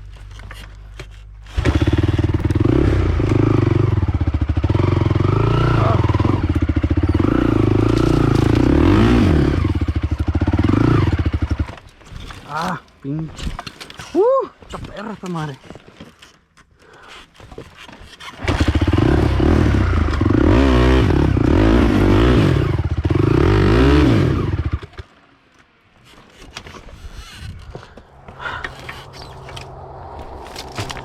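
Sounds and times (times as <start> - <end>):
quad engine revving: 1.5 - 11.6, 18.3 - 25.0
low engine hum: 27.4 - 31.0.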